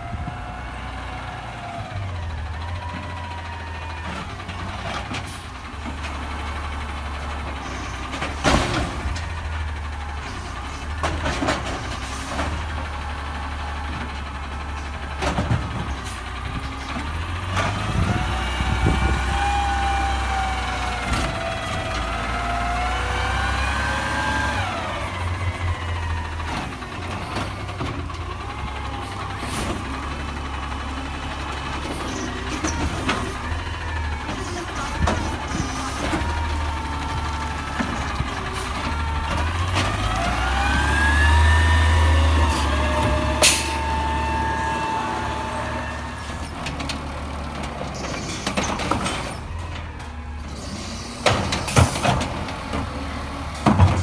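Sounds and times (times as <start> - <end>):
diesel engine rumbling: 0.0 - 54.0
engine whine revving: 34.2 - 46.9.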